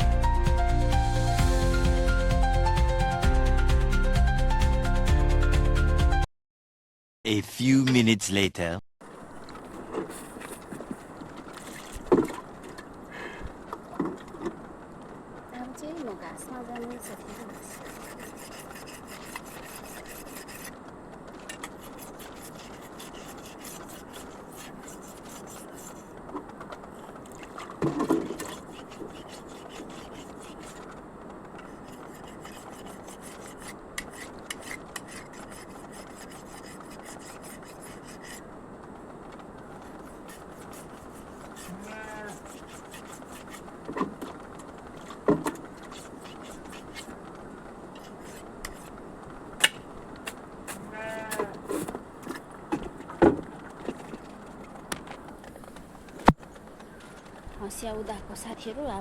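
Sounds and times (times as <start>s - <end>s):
farm animal calls: 41.5s - 42.5s, 50.8s - 51.6s.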